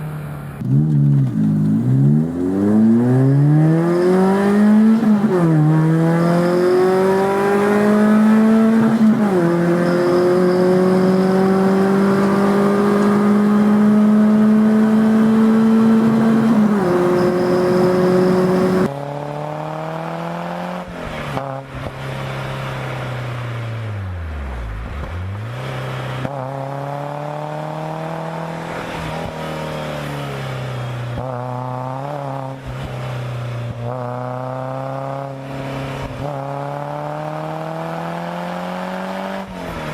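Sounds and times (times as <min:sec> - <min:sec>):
engine rev blips: 0:00.0 - 0:18.9
car engine pulling hard: 0:00.0 - 0:39.9.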